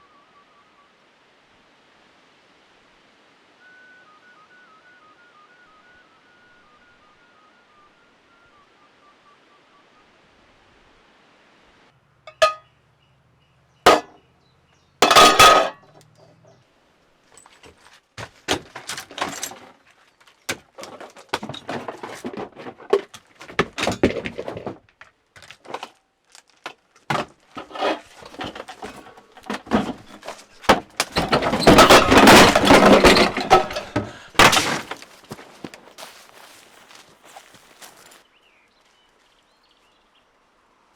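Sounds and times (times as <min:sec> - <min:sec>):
knocks clicks and clattering: 0:13.9 - 0:14.1, 0:15.0 - 0:15.8, 0:20.5 - 0:25.9, 0:27.1 - 0:35.1.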